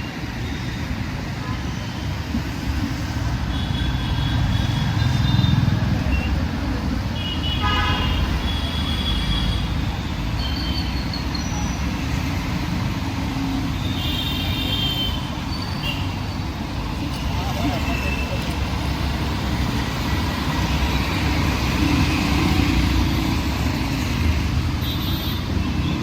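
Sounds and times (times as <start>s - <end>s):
road traffic rumbling: 0.0s - 26.0s
vehicle horns tooting: 7.2s - 9.8s.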